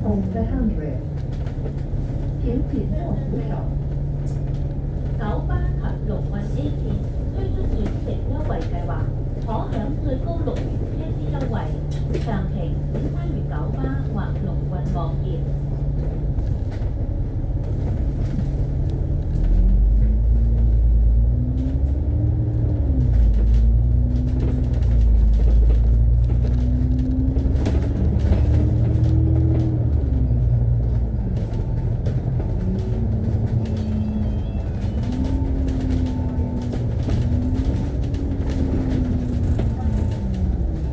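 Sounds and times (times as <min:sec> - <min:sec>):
bus drivetrain whine: 0:00.0 - 0:40.9
bus engine rumble: 0:00.0 - 0:40.9.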